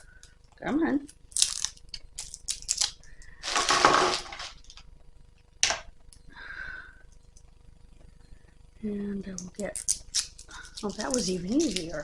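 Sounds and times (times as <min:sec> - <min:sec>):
plastic packaging crinkling: 0:01.2 - 0:04.8, 0:09.5 - 0:12.0.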